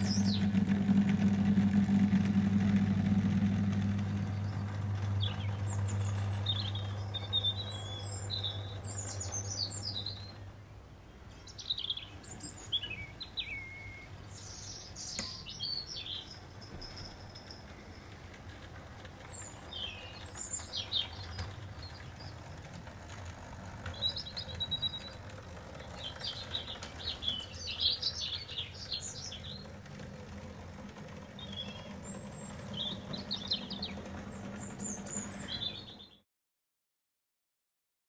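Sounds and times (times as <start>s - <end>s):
low rumble: 0.0s - 9.1s
small birds chirping: 0.0s - 10.6s, 19.3s - 22.9s, 23.8s - 36.2s
faint hum: 0.0s - 36.0s.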